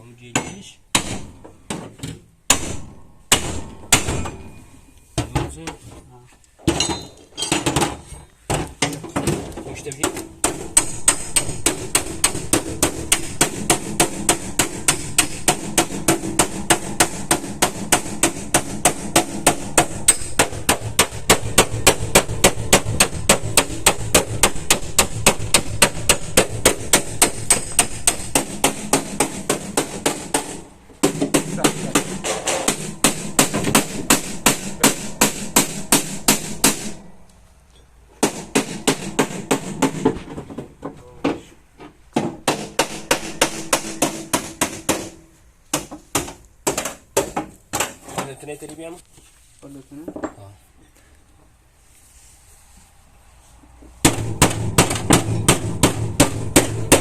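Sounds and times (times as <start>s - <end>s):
hammer tapping sheet metal: 0.3s - 4.6s, 8.6s - 37.1s, 38.2s - 40.2s, 42.4s - 48.0s, 54.0s - 57.0s.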